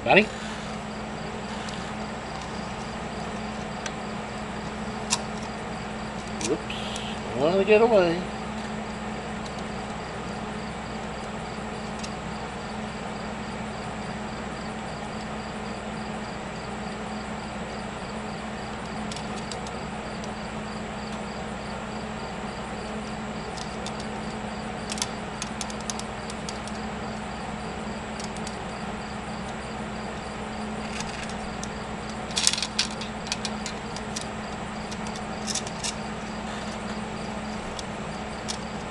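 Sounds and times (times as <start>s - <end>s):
welder humming: 0.0s - 14.2s, 15.2s - 38.9s
faint regular ticking: 22.8s - 38.9s.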